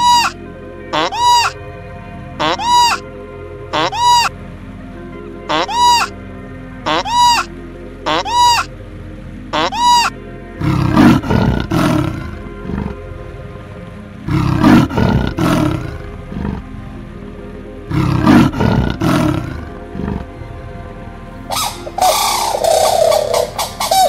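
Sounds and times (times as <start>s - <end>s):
tiger roaring: 10.6s - 13.0s, 14.3s - 16.7s, 17.9s - 20.3s.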